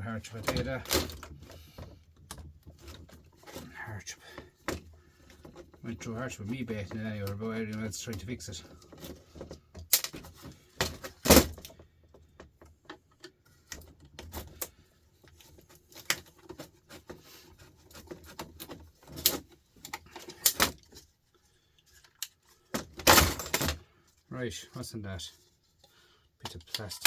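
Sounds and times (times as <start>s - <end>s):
tools and parts clinking: 0.0s - 3.7s, 6.5s - 21.1s, 21.8s - 23.9s, 26.4s - 27.0s.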